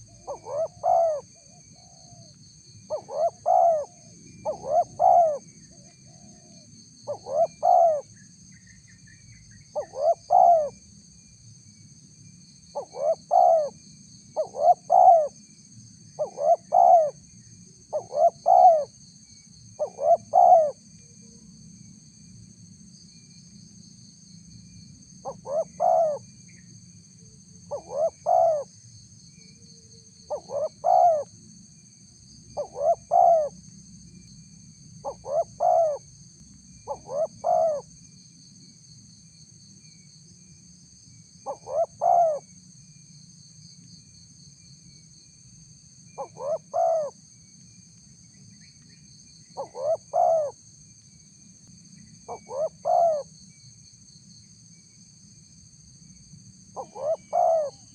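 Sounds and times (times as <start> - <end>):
dove cooing: 0.0 - 2.3, 2.9 - 5.5, 6.1 - 8.1, 9.8 - 10.8, 12.8 - 13.8, 14.4 - 15.4, 16.2 - 17.2, 17.9 - 18.9, 19.8 - 20.8, 25.2 - 26.2, 27.7 - 28.7, 30.3 - 31.3, 32.6 - 33.6, 35.0 - 36.1, 36.9 - 37.9, 41.4 - 42.5, 46.2 - 47.1, 49.6 - 50.6, 52.3 - 53.3, 56.8 - 57.9.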